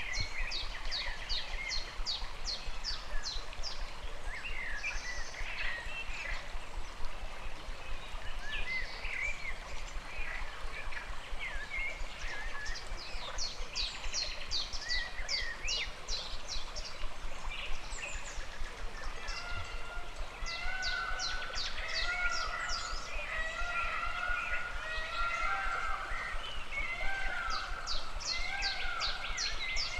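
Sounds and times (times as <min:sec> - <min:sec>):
stream flowing: 0:00.0 - 0:29.9
birds singing: 0:07.9 - 0:29.9.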